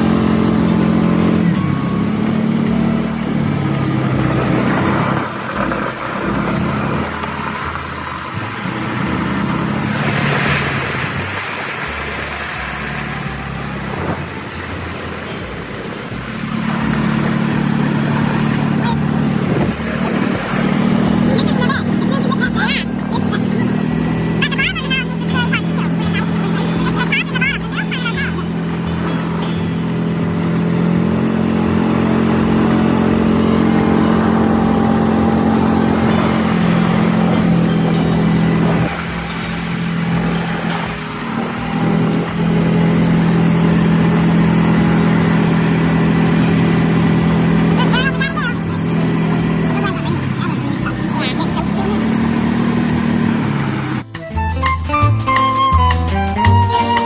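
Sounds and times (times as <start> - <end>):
utility vehicle engine running: 0.0 - 54.4.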